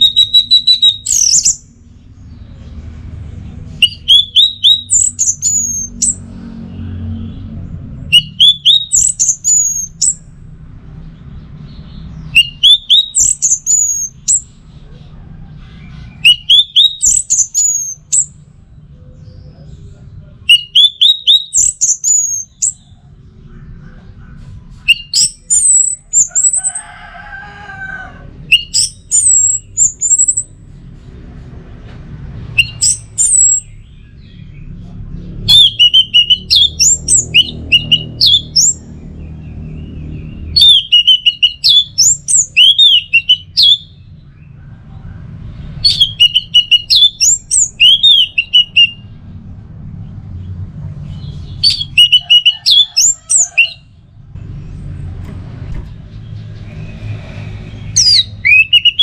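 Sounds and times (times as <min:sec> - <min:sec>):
lower bird call: 0:00.0 - 0:01.6, 0:08.1 - 0:10.2, 0:12.2 - 0:18.4
thrush whistled song: 0:00.0 - 0:01.6, 0:03.8 - 0:06.2, 0:08.1 - 0:10.2, 0:12.3 - 0:14.5, 0:16.2 - 0:18.4, 0:20.5 - 0:22.8, 0:28.5 - 0:30.5, 0:32.5 - 0:34.3, 0:35.5 - 0:38.8, 0:40.6 - 0:44.0, 0:45.8 - 0:49.1, 0:56.7 - 0:59.0.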